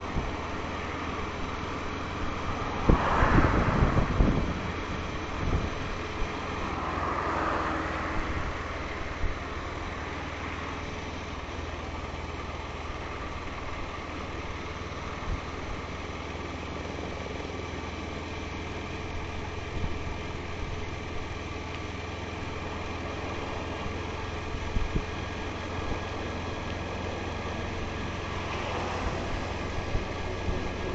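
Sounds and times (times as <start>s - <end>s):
motorcycle engine running: 8.1s - 30.9s.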